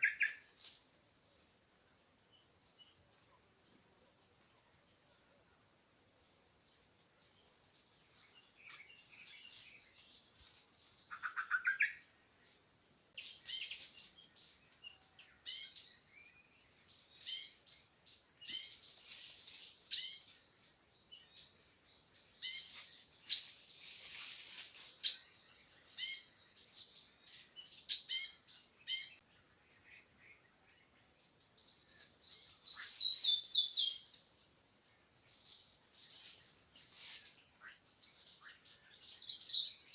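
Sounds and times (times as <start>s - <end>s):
cricket-like insect call pulsing: 11.1s - 12.6s, 31.6s - 34.4s
birds chirping: 31.6s - 34.3s, 37.5s - 39.9s
bird trill: 39.1s - 39.9s.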